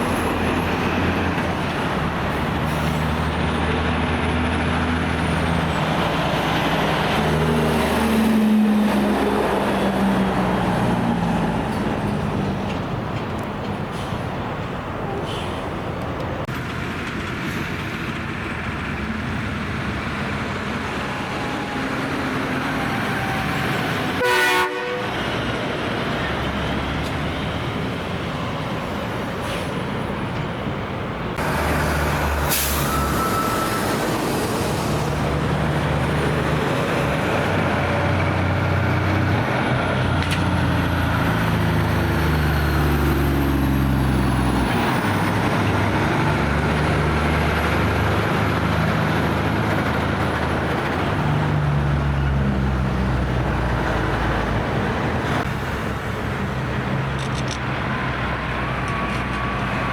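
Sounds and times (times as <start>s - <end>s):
diesel truck engine pulling: 0.0s - 24.2s, 25.0s - 59.9s
heavy truck traffic: 0.0s - 59.9s
loud horn blast: 23.0s - 25.2s.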